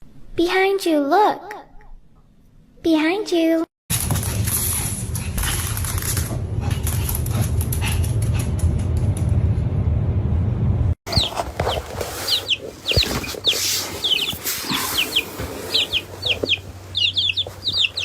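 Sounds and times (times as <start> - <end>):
low rumble: 4.4 - 11.0
high bird chirps: 11.1 - 18.0.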